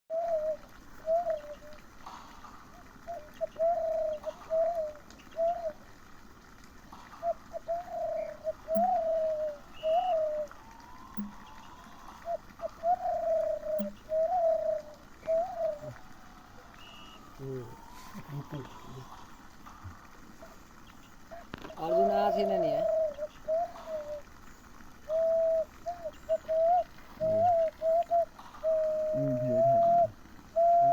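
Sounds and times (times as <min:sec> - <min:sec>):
person imitating dove coos: 0:11.2 - 0:16.2, 0:17.4 - 0:19.2, 0:21.8 - 0:24.2, 0:25.1 - 0:30.9.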